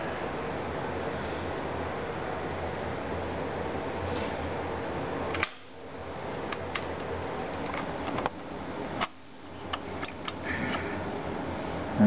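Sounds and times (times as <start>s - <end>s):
background hiss and hum: 0.0s - 12.0s
sharp handling clicks and taps: 6.5s - 8.4s, 9.0s - 10.8s.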